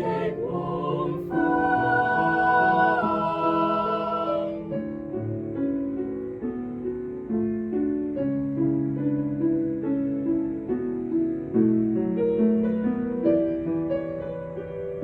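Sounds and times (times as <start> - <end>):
choir holding chord: 0.0 - 5.2
piano playing chords: 0.0 - 15.0.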